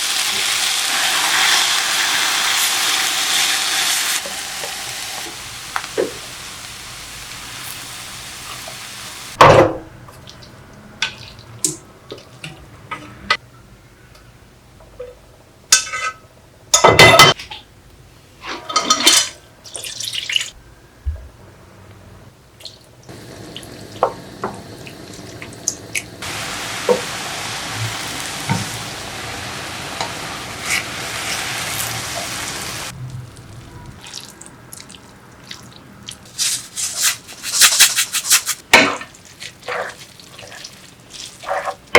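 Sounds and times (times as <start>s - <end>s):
food sizzling in a pan: 0.0s - 9.4s, 23.1s - 34.2s
utensils and dishes clattering: 18.5s - 19.4s.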